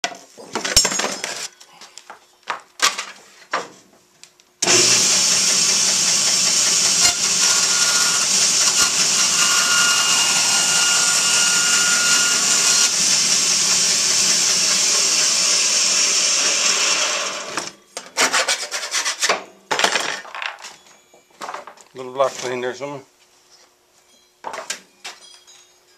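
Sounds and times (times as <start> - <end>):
electric power tool running: 4.6 - 17.8.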